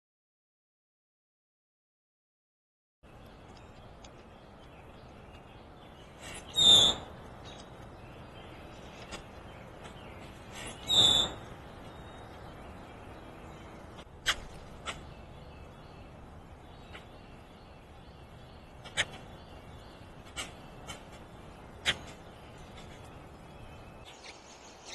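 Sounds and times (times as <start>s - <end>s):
birds calling: 3.0s - 24.9s
outdoor background hiss: 3.0s - 24.9s
sharp bird chirps: 6.2s - 7.6s, 9.8s - 12.4s.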